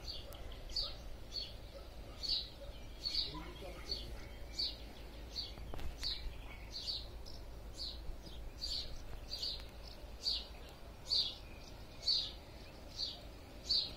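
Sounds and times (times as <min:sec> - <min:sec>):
bird chirping: 0:00.0 - 0:13.9.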